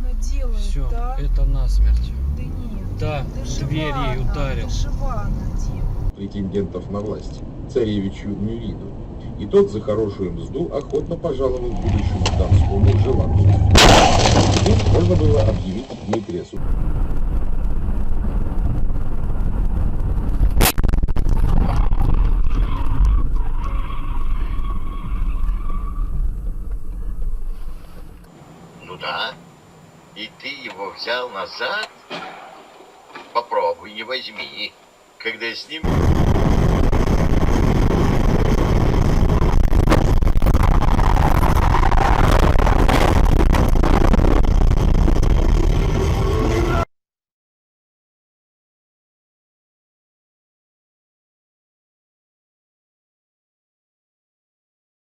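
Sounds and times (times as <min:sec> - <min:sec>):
car engine and road rumble: 0:00.0 - 0:46.9
traffic noise: 0:00.0 - 0:46.9
sharp bang: 0:12.2 - 0:15.5, 0:32.1 - 0:33.4
high squeal: 0:22.0 - 0:26.4.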